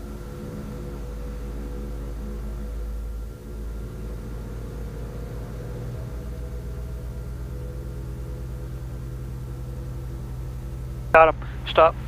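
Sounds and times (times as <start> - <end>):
piston aircraft engines droning: 0.0 - 12.0.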